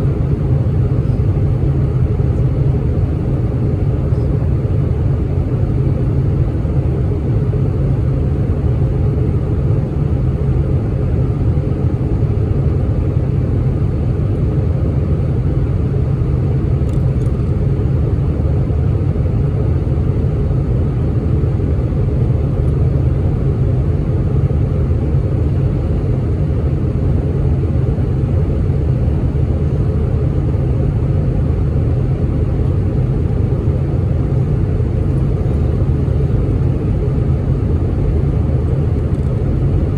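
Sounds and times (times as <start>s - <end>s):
jet engines rumbling in cabin: 0.0s - 39.9s.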